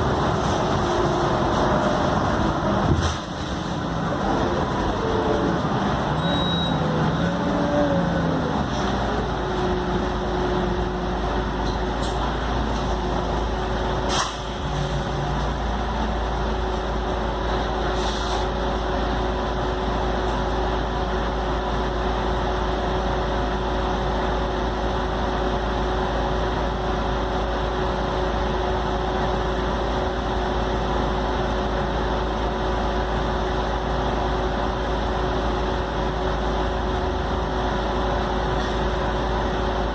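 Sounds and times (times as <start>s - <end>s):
drivetrain whine: 0.0s - 14.1s
bus engine drone: 0.0s - 39.9s
road noise: 0.0s - 39.9s.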